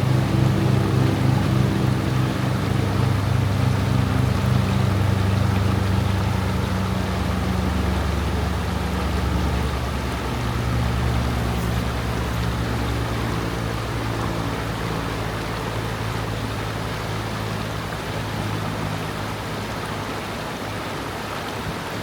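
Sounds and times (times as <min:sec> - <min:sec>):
low droning hum: 0:00.0 - 0:19.8
stream flowing over stones: 0:00.0 - 0:22.0.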